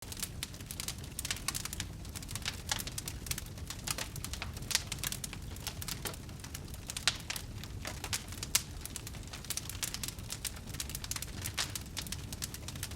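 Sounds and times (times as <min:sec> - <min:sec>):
burning wood crackling: 0:00.0 - 0:12.9.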